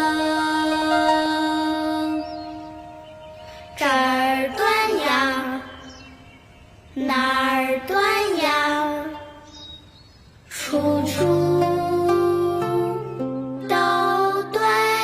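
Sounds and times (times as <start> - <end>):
soft musical accompaniment: 0.0 - 5.0, 10.6 - 15.0
high voice singing with vibrato: 0.0 - 6.2, 7.0 - 9.5, 10.5 - 15.0.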